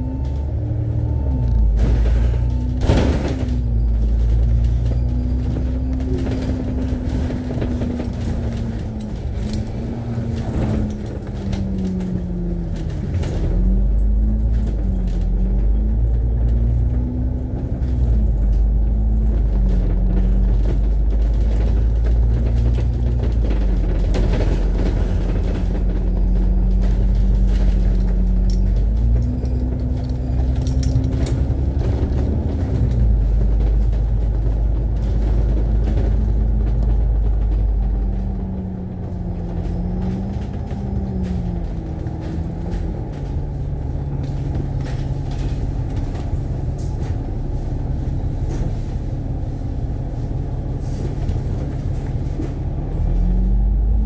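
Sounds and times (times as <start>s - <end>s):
bus engine rumbling: 0.0s - 54.0s.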